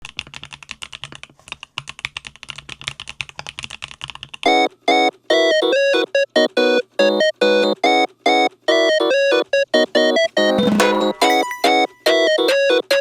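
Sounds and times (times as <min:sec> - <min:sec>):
mechanical keyboard typing: 0:00.0 - 0:13.0
chopped piano chords music: 0:04.5 - 0:13.0.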